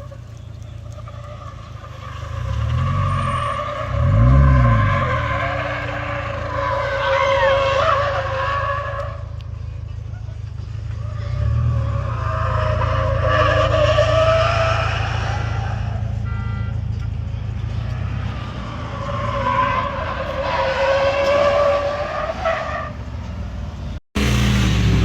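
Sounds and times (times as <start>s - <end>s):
low engine rumble: 0.0s - 3.0s
car tyres squealing: 0.0s - 25.0s.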